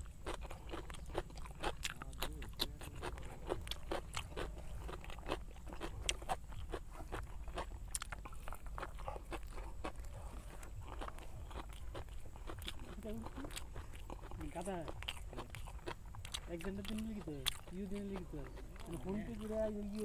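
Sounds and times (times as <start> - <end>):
chewing food: 0.0 - 20.0
wet mouth clicks and smacks: 0.9 - 10.1.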